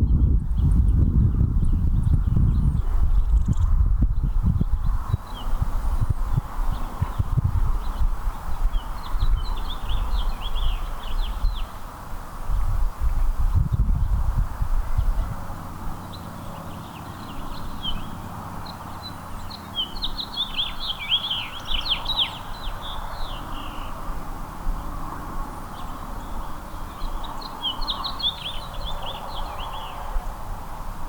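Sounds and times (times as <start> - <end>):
songbird chirping: 16.0 - 24.1, 25.5 - 30.2.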